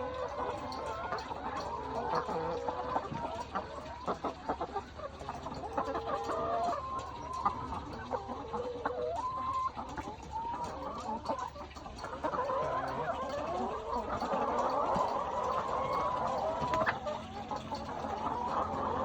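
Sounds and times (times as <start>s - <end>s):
hens clucking and calling: 0.0s - 19.0s.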